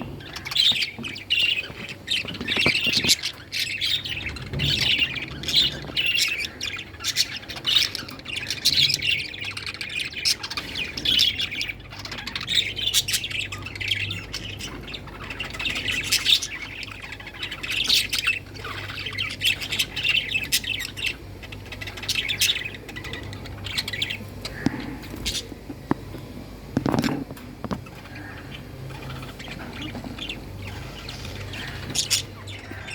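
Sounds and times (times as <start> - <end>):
budgerigars chattering and chirping: 0.0 - 32.9.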